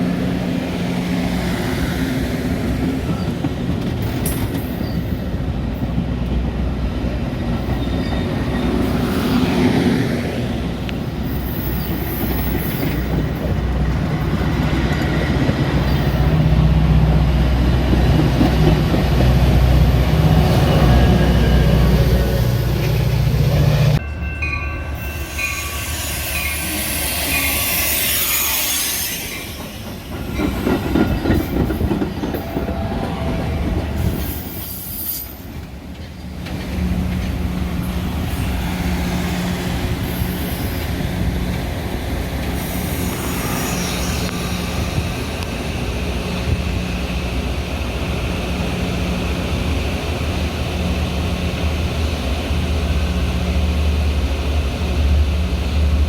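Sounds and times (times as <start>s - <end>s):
train humming: 0.0s - 56.0s
train wheels squealing: 4.0s - 5.4s, 7.6s - 9.7s, 11.2s - 13.6s, 25.0s - 33.4s, 34.0s - 35.6s, 39.2s - 41.2s, 42.4s - 45.4s.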